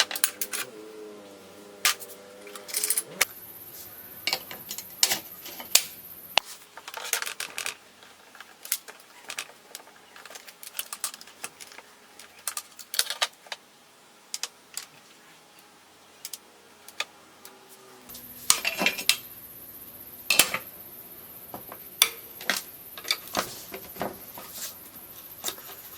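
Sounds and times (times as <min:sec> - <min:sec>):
metal parts clinking: 0:00.0 - 0:00.7, 0:01.9 - 0:03.3
thin high whine: 0:17.6 - 0:25.9.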